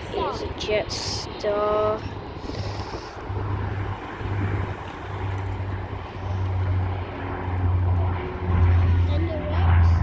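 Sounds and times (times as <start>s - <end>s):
jet airliner engines: 0.0s - 10.0s.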